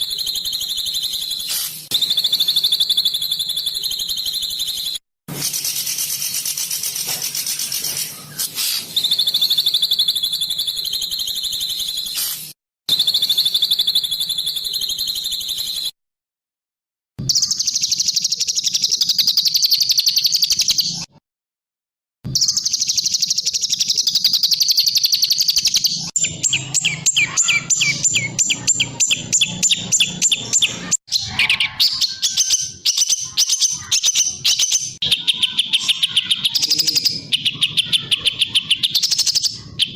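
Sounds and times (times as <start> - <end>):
songbird trilling and chattering: 0.0 - 5.0, 22.4 - 39.9.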